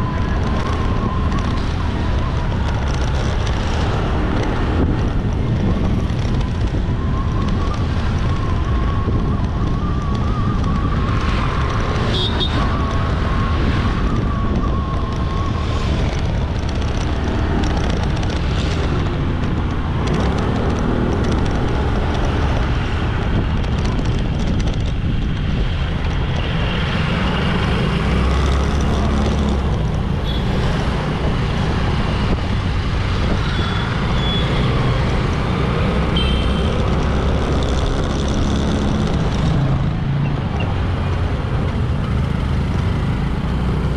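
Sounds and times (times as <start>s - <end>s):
wind buffeting microphone: 0.0s - 43.9s
motorbike engine: 32.9s - 43.9s.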